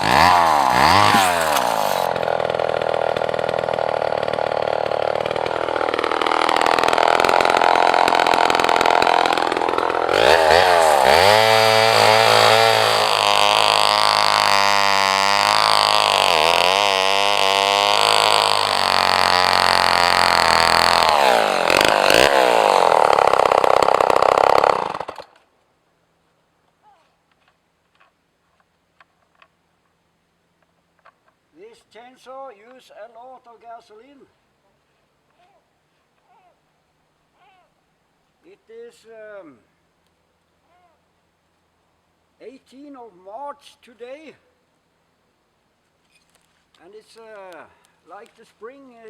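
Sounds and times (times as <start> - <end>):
chainsaw cutting at high revs: 0.0 - 25.4.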